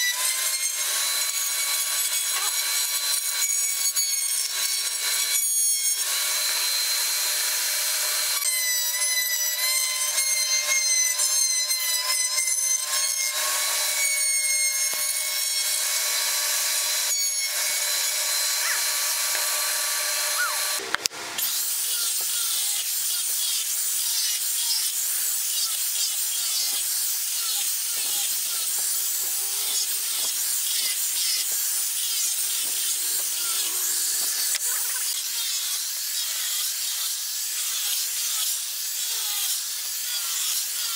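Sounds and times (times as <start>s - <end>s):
wood router whining: 0.0s - 40.9s.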